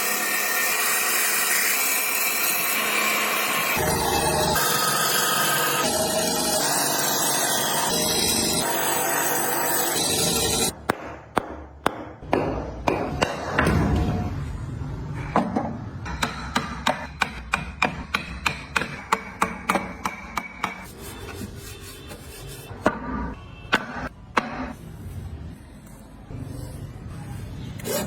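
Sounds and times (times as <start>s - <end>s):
hammer striking wood: 10.8s - 14.2s, 15.4s - 20.9s, 23.7s - 24.7s.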